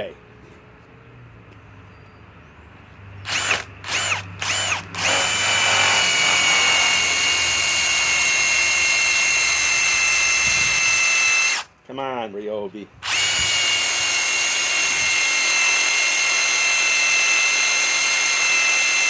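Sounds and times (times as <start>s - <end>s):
impact wrench whining: 3.2s - 11.7s, 13.0s - 19.0s.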